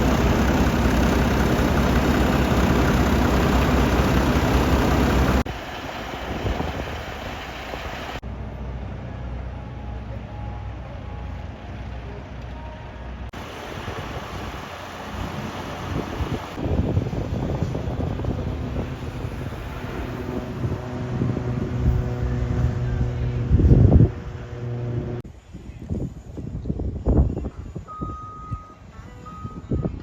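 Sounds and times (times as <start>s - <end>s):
vehicle engine running: 0.0s - 5.5s, 8.2s - 25.2s.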